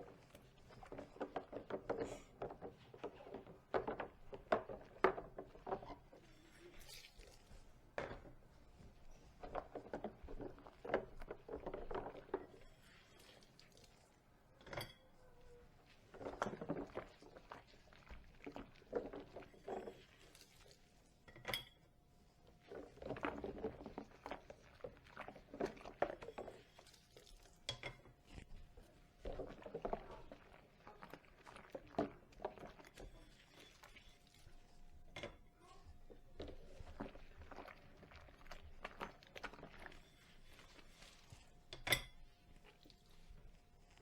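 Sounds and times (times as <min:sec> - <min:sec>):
scrubbing and splashing: 0:22.0 - 0:44.0.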